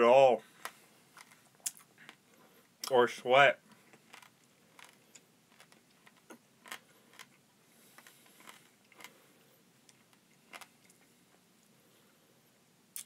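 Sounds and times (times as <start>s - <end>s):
chewing crunchy bug: 3.9s - 9.2s.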